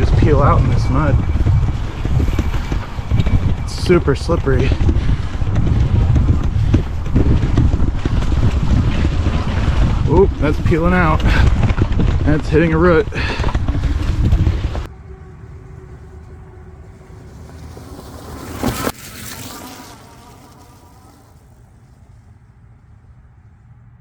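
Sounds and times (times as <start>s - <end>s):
wind noise on microphone: 0.0s - 22.1s
electric motor buzzing whine: 14.2s - 21.9s.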